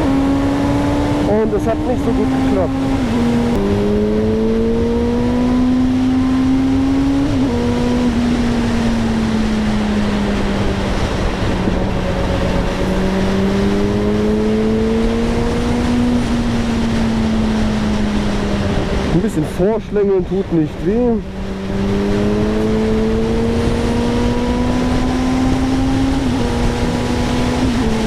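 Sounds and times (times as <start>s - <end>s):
motorcycle engine running: 0.0s - 19.2s
wind noise: 0.0s - 28.0s.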